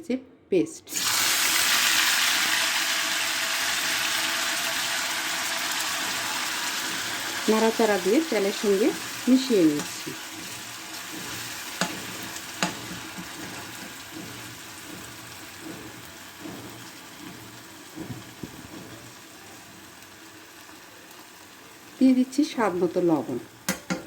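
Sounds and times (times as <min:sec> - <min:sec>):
paste sizzling in hot oil: 0:00.9 - 0:24.0
spoon clicking against pan: 0:12.6 - 0:13.0, 0:23.7 - 0:24.0.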